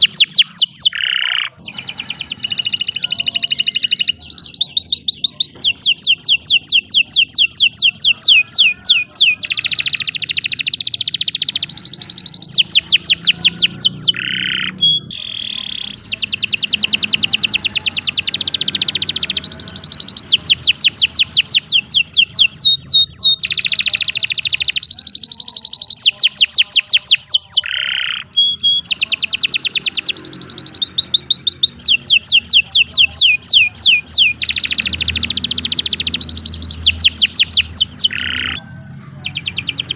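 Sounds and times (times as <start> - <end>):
canary singing rapid trills: 0.0 - 39.9.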